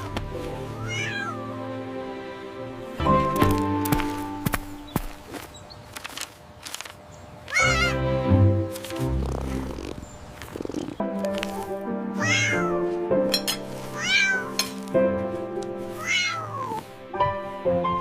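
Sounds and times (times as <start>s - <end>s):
background music: 0.0s - 5.3s, 7.6s - 18.0s
cat meowing: 0.7s - 1.6s, 7.5s - 8.0s, 12.2s - 12.8s, 13.9s - 14.6s, 16.0s - 16.8s.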